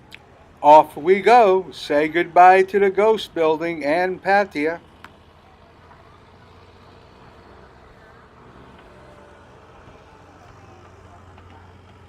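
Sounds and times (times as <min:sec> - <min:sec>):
background noise: 0:00.0 - 0:12.0
boat engine droning: 0:00.0 - 0:12.0.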